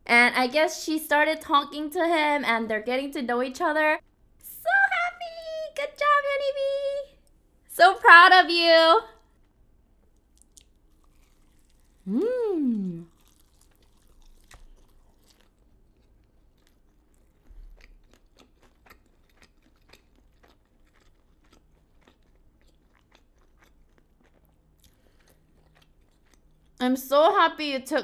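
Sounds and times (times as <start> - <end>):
crunchy chewing: 9.2 - 26.8.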